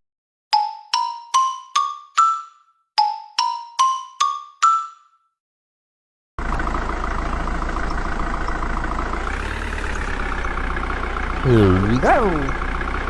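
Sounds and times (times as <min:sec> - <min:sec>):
marimba jingle: 0:00.5 - 0:05.2.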